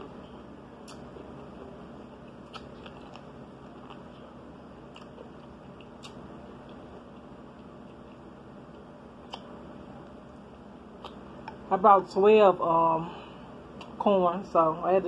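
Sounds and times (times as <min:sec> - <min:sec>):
chewing corn on the cob: 0:00.0 - 0:09.5.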